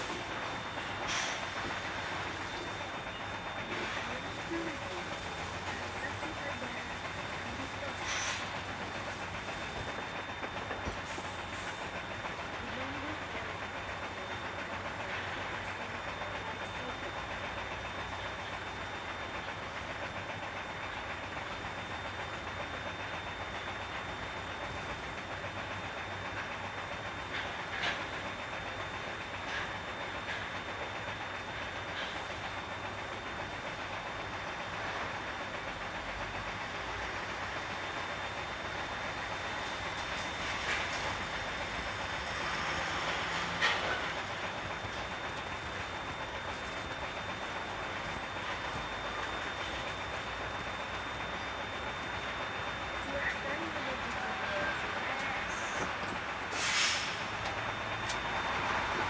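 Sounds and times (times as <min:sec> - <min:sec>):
faint high whine: 0:00.0 - 0:35.6, 0:36.8 - 0:59.0
diesel truck engine droning: 0:00.0 - 0:59.0
road and rattle noise: 0:00.0 - 0:59.0
truck road noise: 0:38.9 - 0:59.0.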